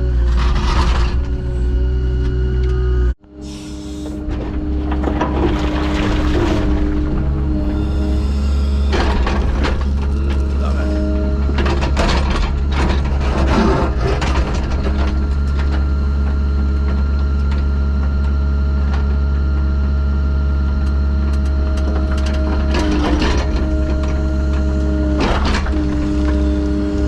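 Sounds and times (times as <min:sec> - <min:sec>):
engine droning: 0:00.0 - 0:27.0
clanking and scraping: 0:00.1 - 0:01.6, 0:03.6 - 0:15.8, 0:21.4 - 0:27.0.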